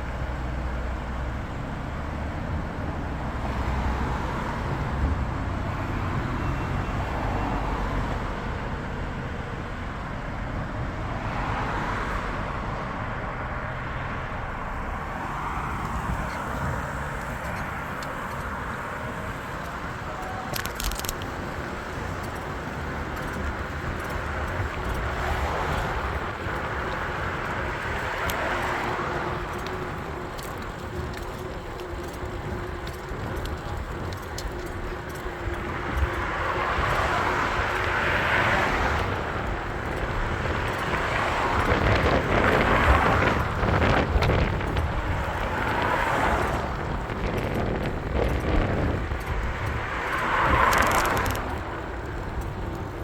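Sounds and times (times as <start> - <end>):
road noise: 0.0 - 53.0
wind rush: 32.2 - 53.0.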